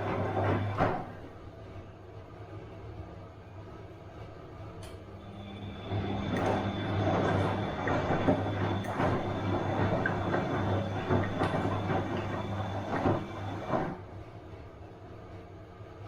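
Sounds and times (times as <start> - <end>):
washing machine drum tumbling: 0.0 - 1.3, 5.2 - 14.1
washing machine motor hum: 0.0 - 1.7, 4.0 - 14.4.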